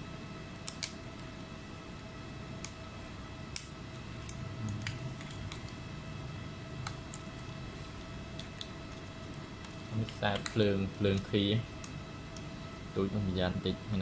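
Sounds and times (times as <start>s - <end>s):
faint steady hum: 0.0s - 14.0s
small tools clicking and tapping: 8.4s - 12.5s.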